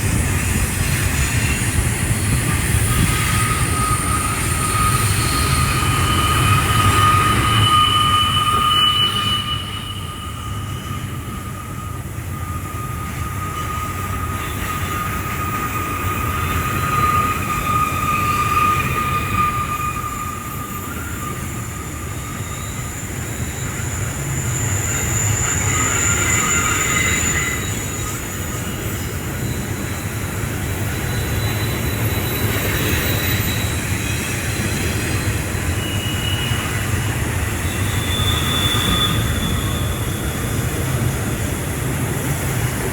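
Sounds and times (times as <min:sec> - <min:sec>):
train wheels rumbling on rails: 0:00.0 - 0:42.9
high-pitched wheel squeals: 0:00.5 - 0:42.9.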